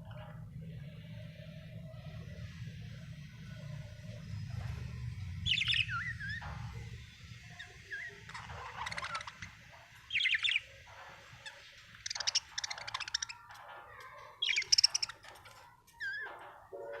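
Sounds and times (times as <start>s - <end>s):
budgerigars chirping and squawking: 5.4s - 13.6s, 14.2s - 17.0s.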